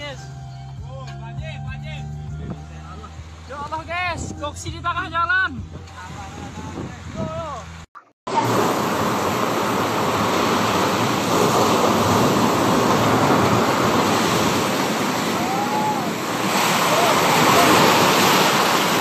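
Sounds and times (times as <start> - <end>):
wind blowing across microphone: 5.5 - 19.0
sea waves breaking: 5.9 - 19.0.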